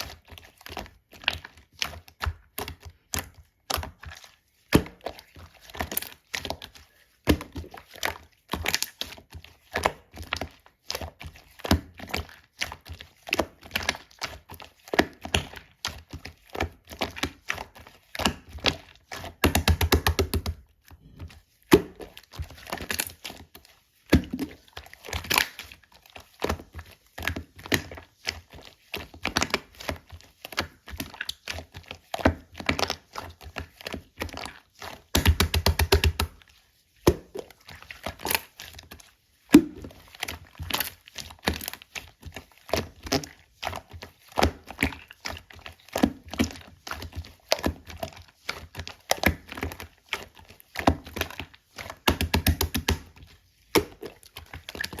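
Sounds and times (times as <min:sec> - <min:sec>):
sticky pops and clicks: 0:19.4 - 0:20.6, 0:35.1 - 0:36.4, 0:52.1 - 0:53.1.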